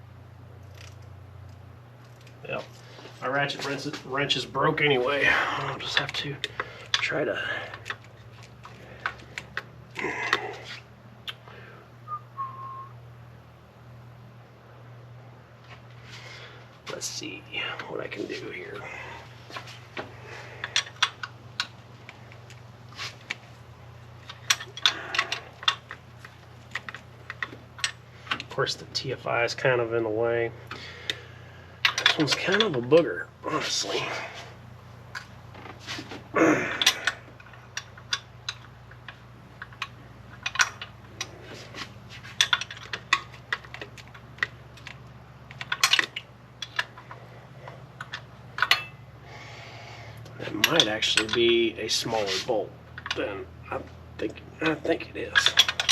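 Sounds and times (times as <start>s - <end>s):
metal clicks of hand tools: 20.6s - 21.8s, 24.2s - 28.5s, 31.8s - 32.9s, 36.7s - 49.0s, 50.2s - 51.6s, 52.2s - 53.2s, 54.2s - 55.9s
metal scrape: 52.1s - 52.5s.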